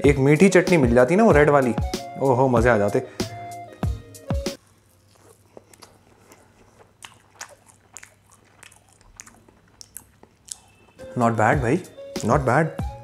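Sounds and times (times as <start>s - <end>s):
man biting soft food: 4.6s - 11.0s
wet chewing clicks: 4.6s - 11.0s.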